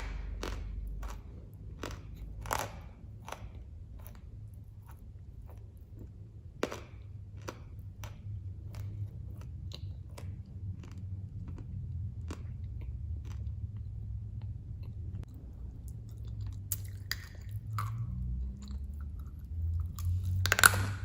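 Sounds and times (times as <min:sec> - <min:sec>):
person chewing crunchy clay: 0:00.0 - 0:21.0
steady low hum: 0:00.0 - 0:21.0.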